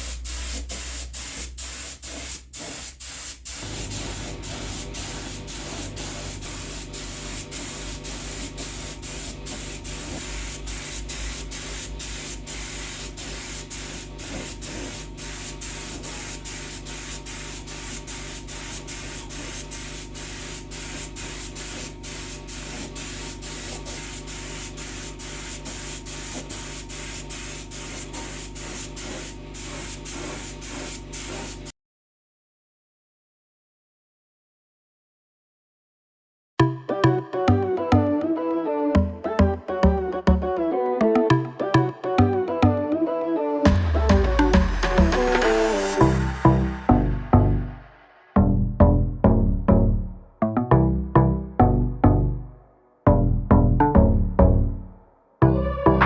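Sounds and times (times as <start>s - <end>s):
spray hiss: 0.0s - 31.7s, 44.9s - 46.9s.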